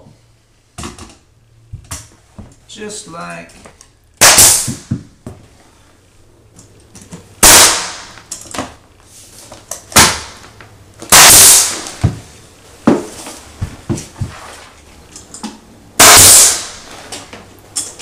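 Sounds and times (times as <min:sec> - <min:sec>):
pneumatic nail gun shots: 0:04.2 - 0:05.0, 0:07.4 - 0:08.2, 0:09.9 - 0:10.4, 0:11.1 - 0:12.0, 0:16.0 - 0:16.9.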